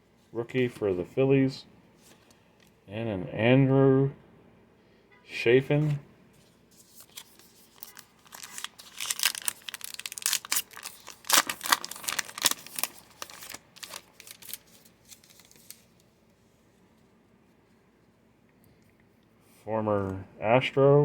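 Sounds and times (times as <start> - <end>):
wrapper tearing and crinkling: 6.9 - 16.0.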